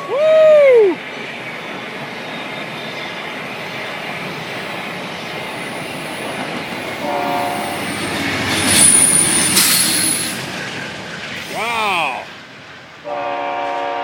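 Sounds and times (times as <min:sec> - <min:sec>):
train wheels rumbling on rails: 0:00.0 - 0:14.0
high-pitched squeal: 0:05.4 - 0:12.3
train horn: 0:07.0 - 0:08.0, 0:13.0 - 0:14.0.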